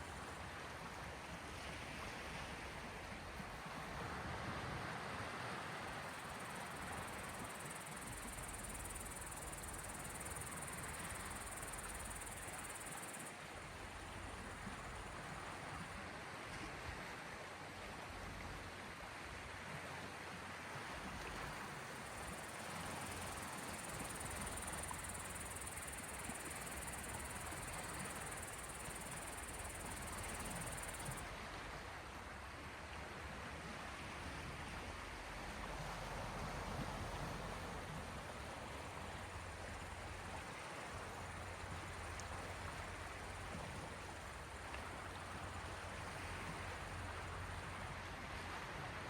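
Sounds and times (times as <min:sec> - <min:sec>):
small sea waves hissing: 0:04.9 - 0:16.0, 0:21.6 - 0:31.3
high fast insect trill: 0:06.1 - 0:13.3, 0:22.1 - 0:31.2.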